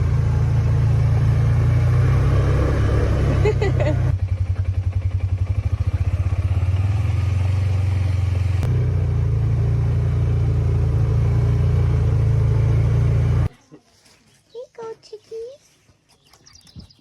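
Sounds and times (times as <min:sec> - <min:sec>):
motor vehicle rumble: 0:00.0 - 0:13.5.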